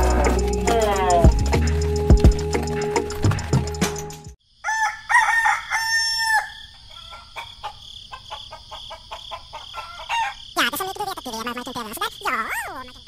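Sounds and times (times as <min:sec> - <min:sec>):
high-pitched background tone: 0:00.0 - 0:03.0
background music: 0:00.0 - 0:04.4
rooster crowing: 0:04.5 - 0:10.5
chicken clucking: 0:06.8 - 0:10.3.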